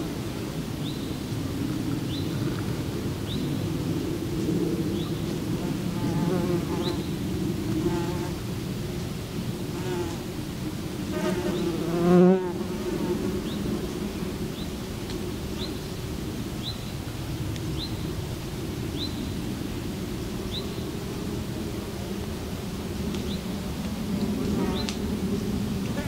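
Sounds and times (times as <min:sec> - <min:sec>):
insects buzzing: 0:04.9 - 0:18.1, 0:18.8 - 0:26.0.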